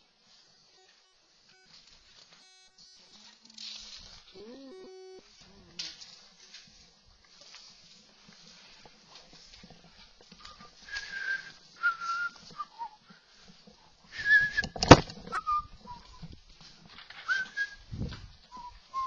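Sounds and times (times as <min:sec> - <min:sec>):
person whistling: 0:10.5 - 0:13.0, 0:14.1 - 0:16.3, 0:17.2 - 0:19.0.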